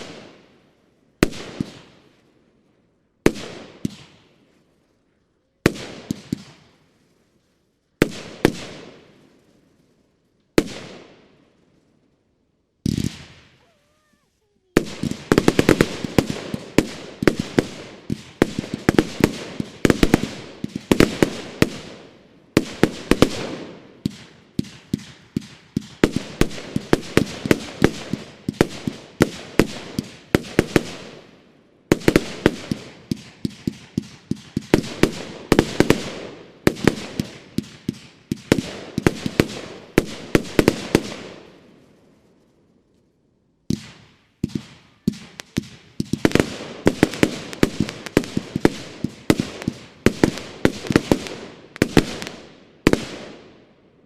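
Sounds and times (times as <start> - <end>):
firework volleys of bangs: 0.0 - 0.4, 1.2 - 2.3, 3.2 - 10.0, 10.6 - 11.5, 12.8 - 31.3, 31.9 - 42.3, 43.7 - 53.5.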